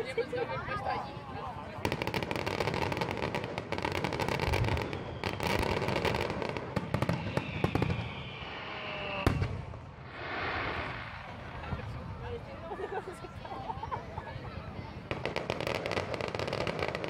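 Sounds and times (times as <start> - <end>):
fireworks crackling and popping: 1.7 - 12.3, 15.1 - 17.0
firework bangs: 1.8 - 12.2, 15.1 - 17.0
falling firework whistle: 4.3 - 11.0.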